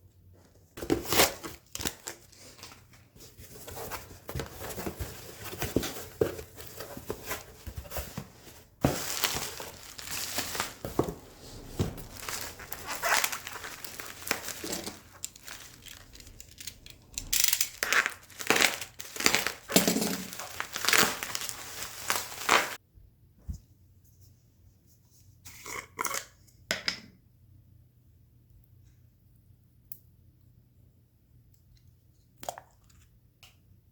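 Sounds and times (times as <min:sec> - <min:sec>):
crinkling and rustling by hand: 0:00.2 - 0:22.8.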